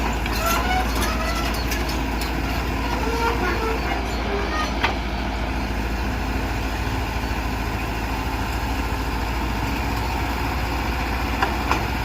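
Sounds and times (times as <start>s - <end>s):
heavy diesel engine rumbling: 0.0s - 12.0s.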